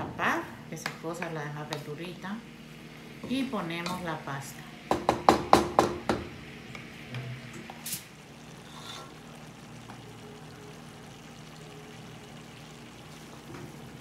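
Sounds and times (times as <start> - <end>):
vegetables sizzling in a pot: 0.0 - 14.0.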